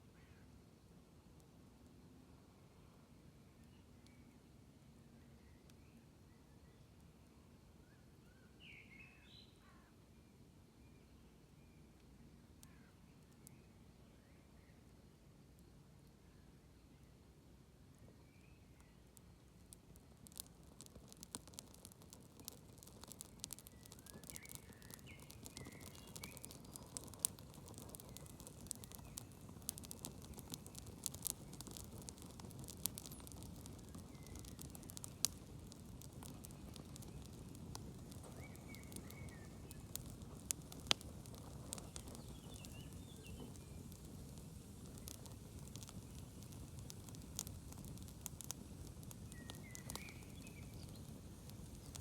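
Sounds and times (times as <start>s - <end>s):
low rush of burning wood: 17.5s - 52.0s
campfire crackling and popping: 19.1s - 52.0s.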